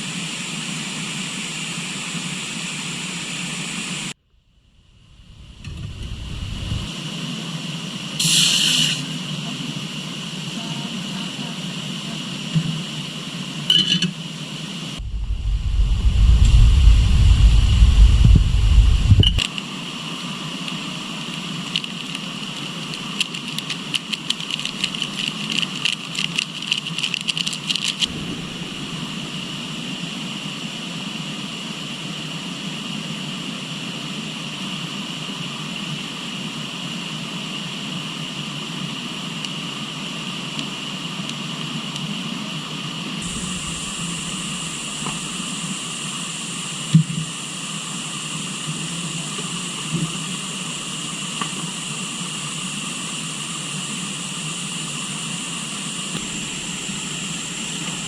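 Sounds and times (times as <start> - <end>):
loud low rumble: 4.3 - 6.9, 15.0 - 19.4, 28.1 - 31.1, 43.2 - 46.4, 56.2 - 58.0
high drone of insects: 15.0 - 19.4, 28.0 - 32.8, 43.2 - 58.0.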